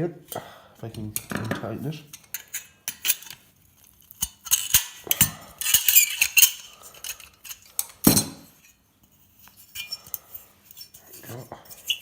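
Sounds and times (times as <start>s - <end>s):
metal parts clinking: 4.2s - 8.8s, 9.4s - 12.0s.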